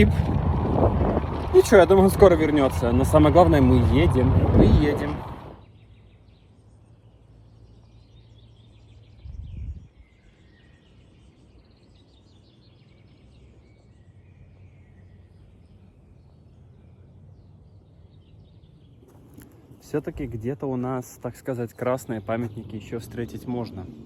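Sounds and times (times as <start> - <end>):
steady low rumble: 0.0 - 5.6, 19.0 - 24.0
small birds chirping: 1.2 - 24.0.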